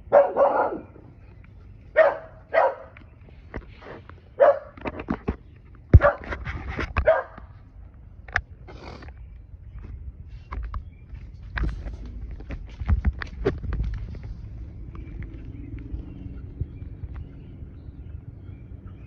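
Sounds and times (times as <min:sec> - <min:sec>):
dog barking: 0:00.0 - 0:01.0, 0:01.9 - 0:03.0, 0:04.4 - 0:04.8, 0:06.0 - 0:06.3, 0:07.0 - 0:07.5.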